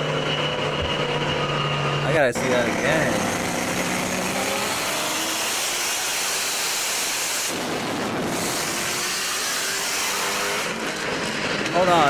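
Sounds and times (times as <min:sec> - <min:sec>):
faint car engine: 0:00.0 - 0:12.0
wind and road noise: 0:00.0 - 0:12.0.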